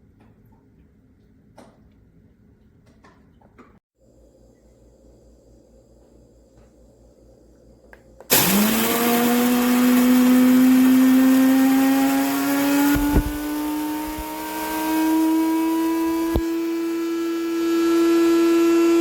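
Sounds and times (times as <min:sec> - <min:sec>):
coffee grinder whirring: 0:08.3 - 0:19.0.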